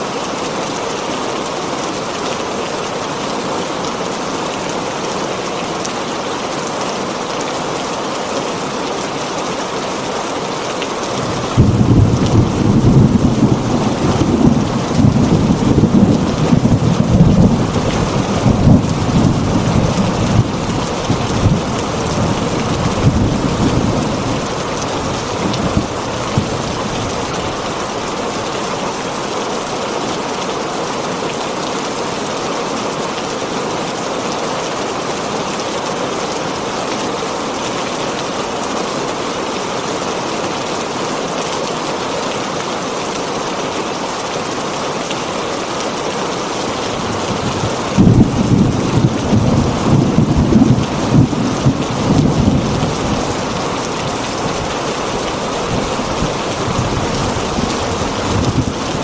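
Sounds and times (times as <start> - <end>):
heavy rain on a tin roof: 0.0 - 59.0
thunder rumbling: 11.2 - 27.9, 46.9 - 59.0.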